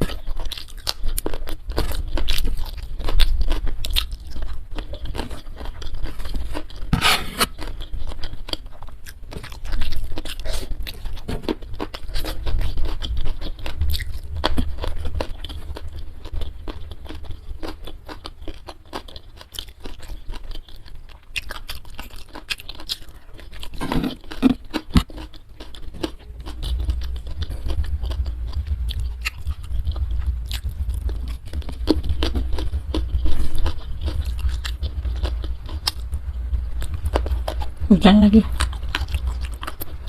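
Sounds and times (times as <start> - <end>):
crunching food chewing: 0.0 - 40.0
low rumble: 25.9 - 40.0.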